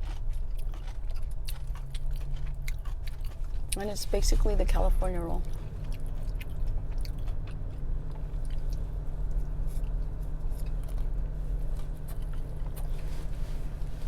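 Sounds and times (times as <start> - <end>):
close chewing of crunchy food: 0.0 - 14.0
steady low hum: 0.0 - 14.0.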